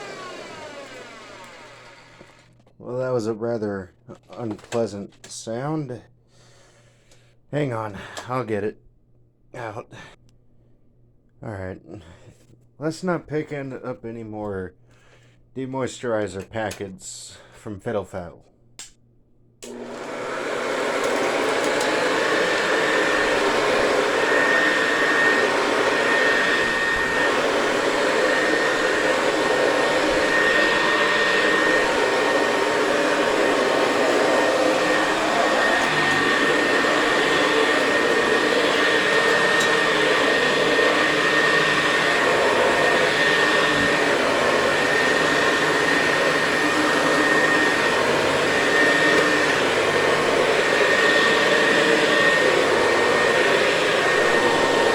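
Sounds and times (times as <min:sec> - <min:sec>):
vacuum cleaner running on carpet: 0:00.0 - 0:02.5, 0:19.6 - 0:54.9.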